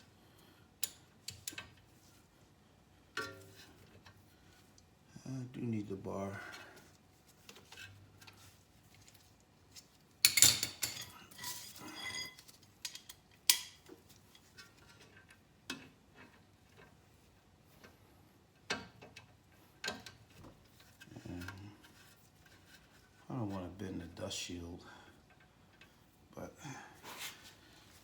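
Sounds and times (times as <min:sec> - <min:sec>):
metal tools clanking: 0:10.3 - 0:12.5
metallic ring: 0:11.4 - 0:12.4.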